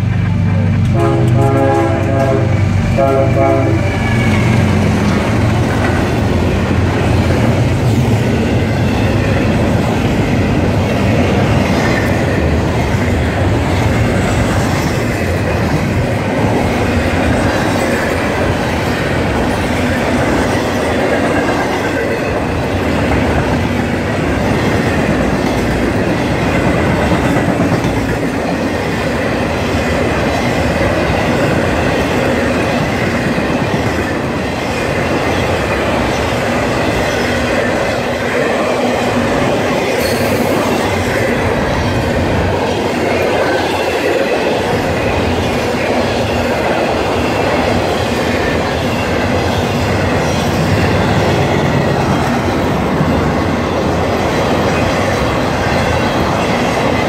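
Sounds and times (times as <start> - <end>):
freight train rumble and wheel clatter: 0.0 - 57.0
locomotive horn blasts: 0.9 - 4.7.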